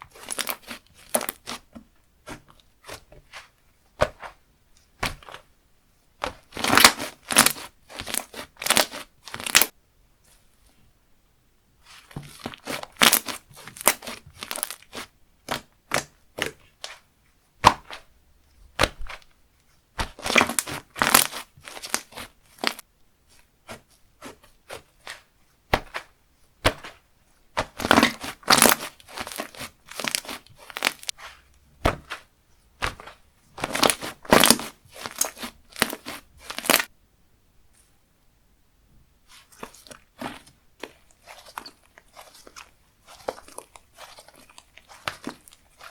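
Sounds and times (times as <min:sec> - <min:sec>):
slime crackling and popping: 0:00.1 - 0:01.6, 0:06.2 - 0:09.7, 0:12.4 - 0:16.6, 0:20.0 - 0:22.8, 0:27.6 - 0:31.3, 0:32.8 - 0:36.9, 0:39.6 - 0:45.9.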